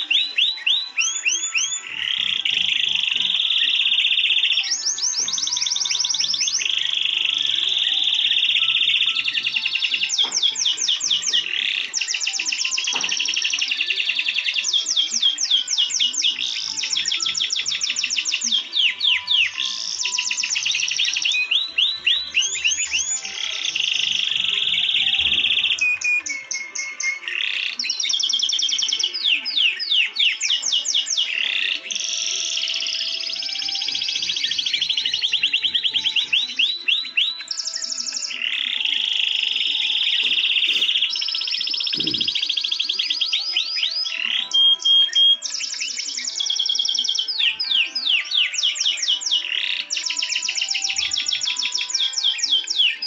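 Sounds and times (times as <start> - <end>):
songbird singing trills and whistles: 0.0 - 53.0.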